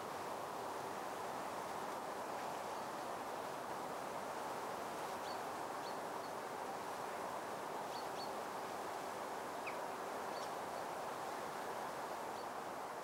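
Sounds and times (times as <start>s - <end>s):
outdoor ambient hiss: 0.0s - 13.0s.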